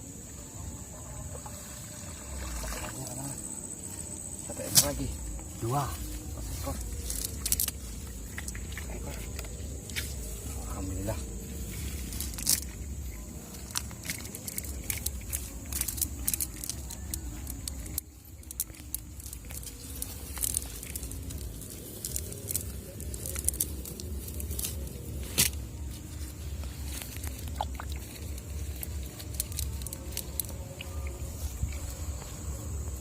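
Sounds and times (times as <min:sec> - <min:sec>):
steady low rumble: 0:03.4 - 0:33.0
wet cast net clicks and jingles: 0:06.8 - 0:10.4, 0:11.6 - 0:31.3.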